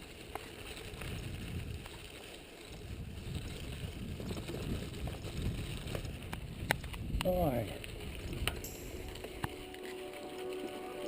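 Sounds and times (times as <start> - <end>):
wind buffeting microphone: 0.8 - 9.6.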